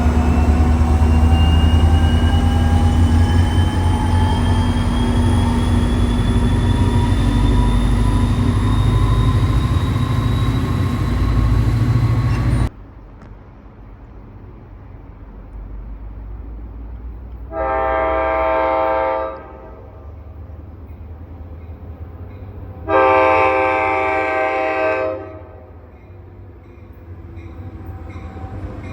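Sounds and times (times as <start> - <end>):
train rumbling: 0.0 - 28.9
train horn blast: 17.5 - 20.3, 22.8 - 25.8.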